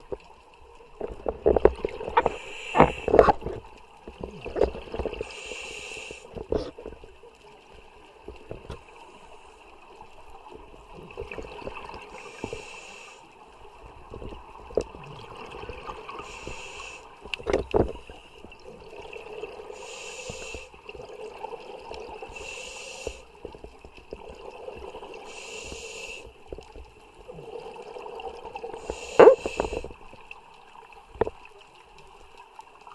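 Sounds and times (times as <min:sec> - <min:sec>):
water bubbling and gurgling: 0:00.0 - 0:32.9
diver breathing hiss: 0:02.2 - 0:03.3, 0:05.2 - 0:06.4, 0:12.1 - 0:13.3, 0:16.2 - 0:17.1, 0:19.7 - 0:20.8, 0:22.3 - 0:23.4, 0:25.2 - 0:26.4, 0:28.8 - 0:30.0.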